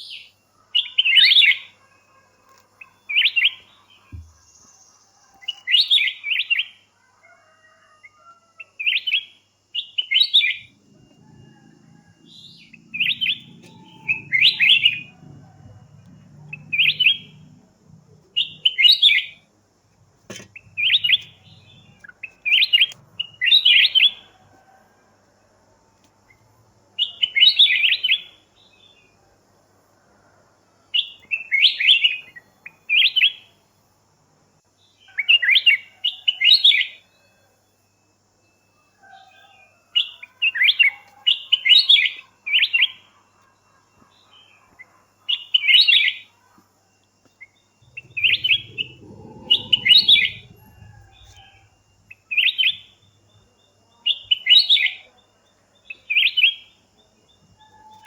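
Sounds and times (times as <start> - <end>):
bird chirping: 0.0 - 6.8, 8.8 - 15.2, 16.3 - 19.5, 20.4 - 24.3, 47.4 - 55.2
low rumble: 47.8 - 51.4.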